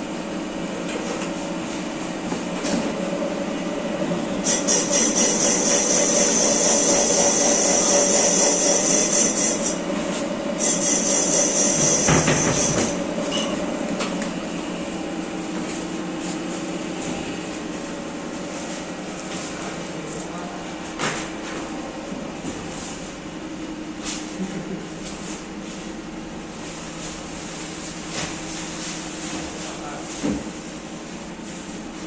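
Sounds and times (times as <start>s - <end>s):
factory machinery humming: 0.0s - 32.0s
tool rattling hiss: 4.4s - 9.8s, 10.6s - 13.0s.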